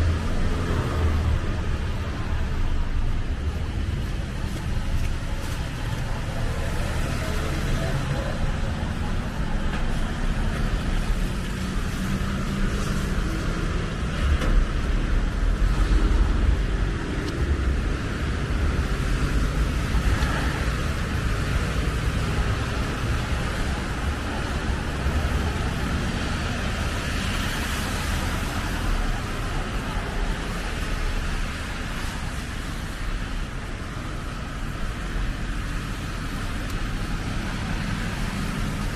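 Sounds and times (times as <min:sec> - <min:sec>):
vehicles passing on street: 0:00.0 - 0:38.9.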